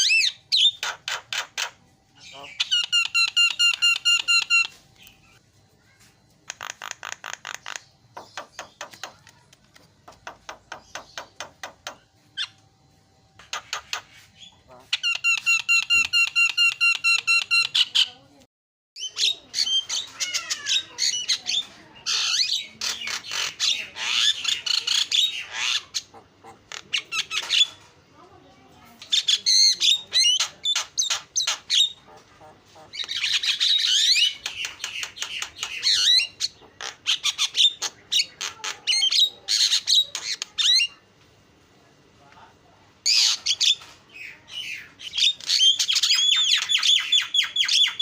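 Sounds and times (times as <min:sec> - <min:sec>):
bird harsh chatter and whistles: 0:00.0 - 0:09.4, 0:10.0 - 0:12.6, 0:13.4 - 0:18.2, 0:19.0 - 0:27.9, 0:29.0 - 0:41.1, 0:43.0 - 0:48.0
myna bird calling: 0:00.0 - 0:12.6, 0:13.4 - 0:18.3, 0:19.0 - 0:27.9.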